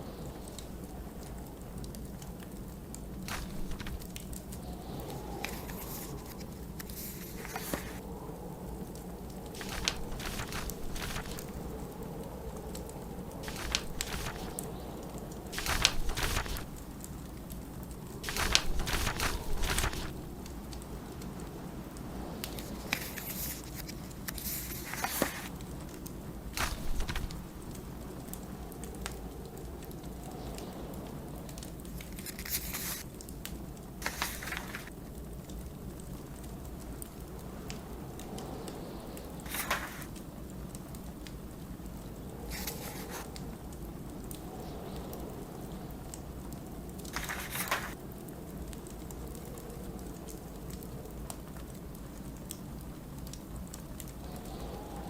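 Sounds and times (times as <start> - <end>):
snowstorm wind: 0.0 - 55.0
wood fire crackling: 0.1 - 55.0
paper page turning: 3.3 - 8.0, 9.6 - 11.6, 13.4 - 14.6, 15.6 - 16.8, 18.2 - 20.3, 22.5 - 25.5, 26.6 - 27.8, 32.0 - 33.0, 34.0 - 34.9, 39.5 - 40.1, 42.5 - 43.3, 47.1 - 48.0.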